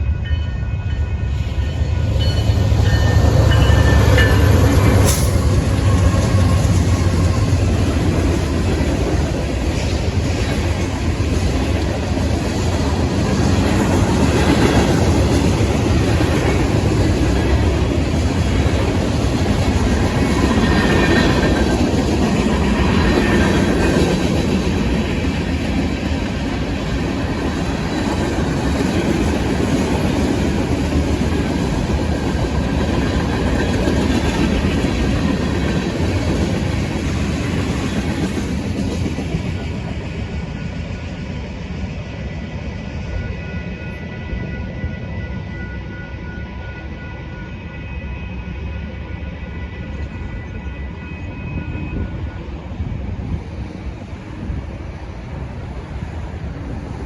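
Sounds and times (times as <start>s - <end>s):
freight train wheels clattering: 1.7s - 41.9s.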